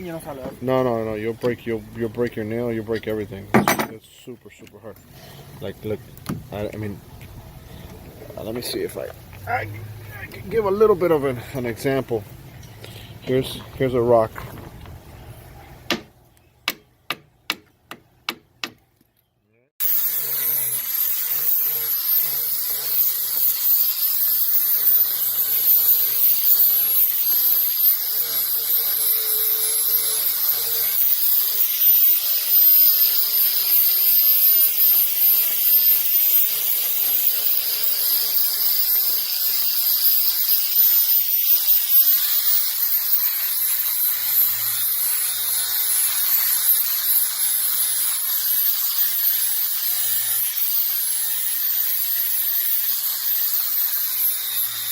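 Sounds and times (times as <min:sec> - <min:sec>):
high-pitched power tool whine: 0:19.8 - 0:54.9.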